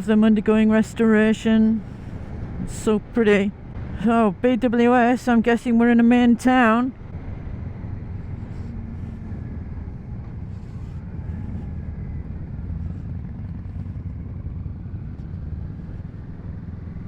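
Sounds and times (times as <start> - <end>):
road and wind noise: 0.0 - 17.0
motorcycle engine running: 6.9 - 17.0.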